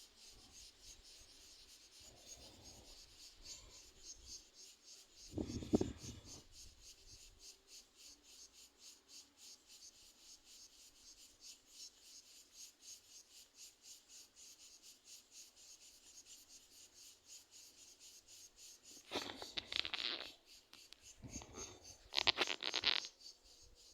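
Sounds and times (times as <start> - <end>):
cricket chirping: 0.0 - 23.9
rustling scraping noise: 19.0 - 23.2.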